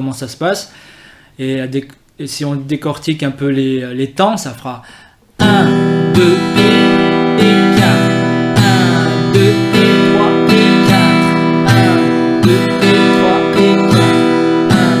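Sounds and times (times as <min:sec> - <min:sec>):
acoustic guitar strumming chords: 0:05.4 - 0:15.0.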